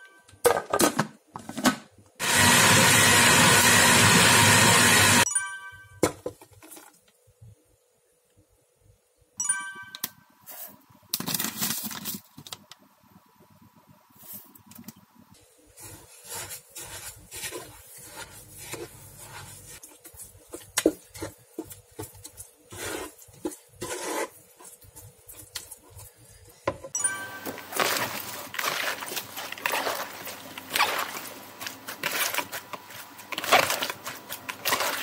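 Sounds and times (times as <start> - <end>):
spatula scraping frying pan: 15.8 - 26.1
wet cabbage leaves rustling: 27.4 - 35.0.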